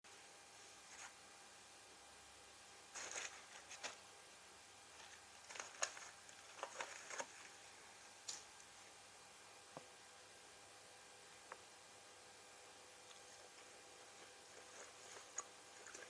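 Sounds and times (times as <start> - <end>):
low steady hiss: 0.1 - 16.0
quiet clicks and rustles: 5.0 - 8.7.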